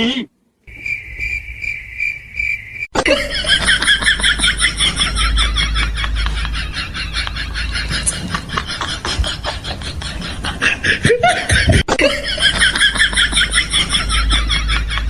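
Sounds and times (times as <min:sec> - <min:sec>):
snickering laughter: 0:03.0 - 0:15.0.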